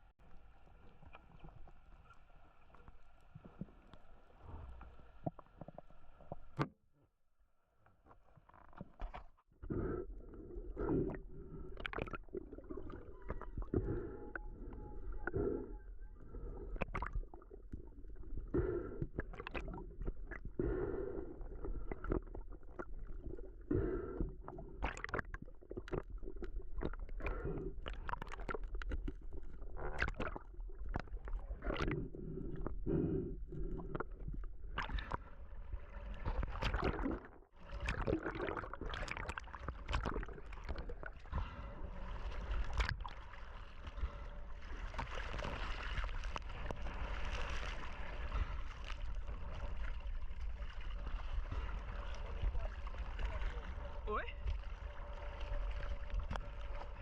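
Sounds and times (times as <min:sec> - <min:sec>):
constant low rumble: 0:38.7 - 0:57.0
running water splashing and gurgling: 0:41.9 - 0:57.0.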